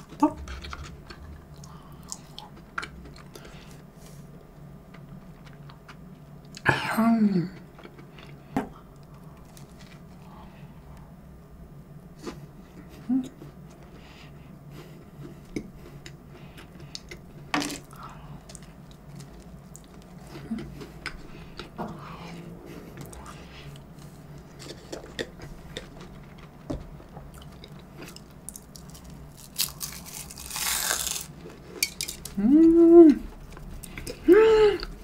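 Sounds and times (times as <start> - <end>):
person chewing egg tart: 0.0 - 3.9, 7.6 - 11.1, 14.7 - 32.4.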